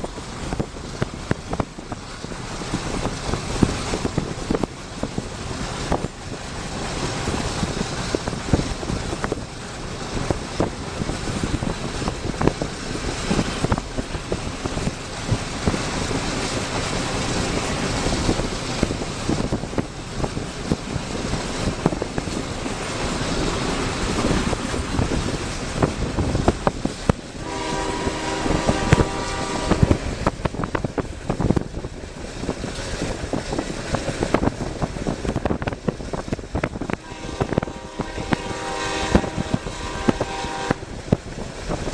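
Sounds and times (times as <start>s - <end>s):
freight train rumbling and clicking: 0.0s - 41.9s
locomotive air horn: 27.4s - 30.0s, 37.0s - 41.2s.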